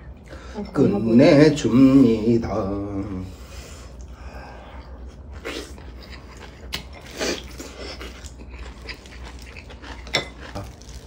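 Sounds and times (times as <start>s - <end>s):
person chewing and smacking: 5.0s - 11.0s.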